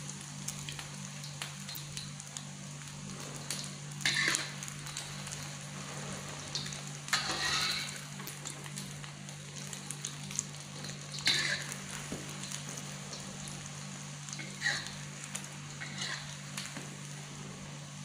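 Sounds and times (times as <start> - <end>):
egg sizzling in oil: 0.0 - 18.0
steady low hum: 0.0 - 18.0
metal spatula scraping pan: 7.1 - 8.0, 11.2 - 11.7, 15.8 - 16.3.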